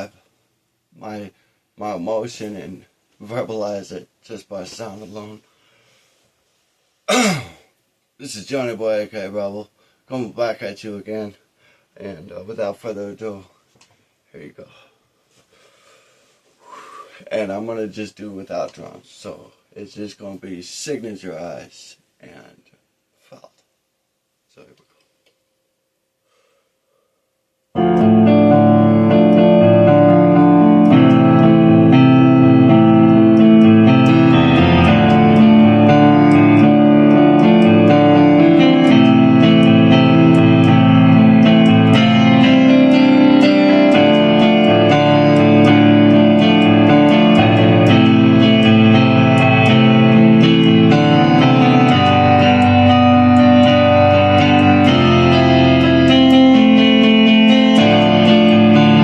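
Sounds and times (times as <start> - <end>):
keyboard chords: 27.7 - 59.0
solo instrumental music: 27.7 - 59.0.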